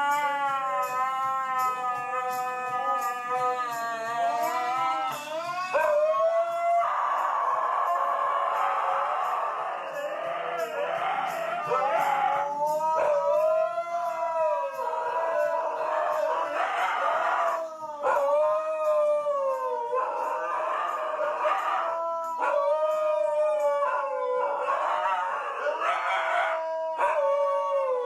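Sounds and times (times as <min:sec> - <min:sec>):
dog howling: 0:00.0 - 0:28.0.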